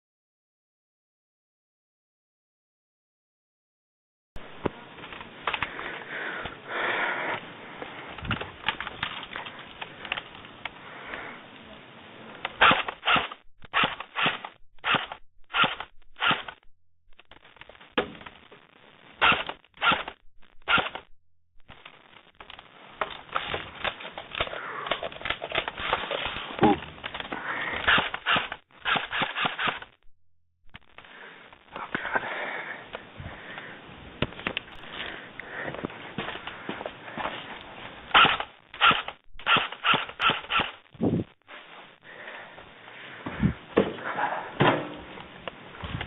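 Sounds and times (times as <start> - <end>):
airsoft gun shots: 38.2 - 40.8.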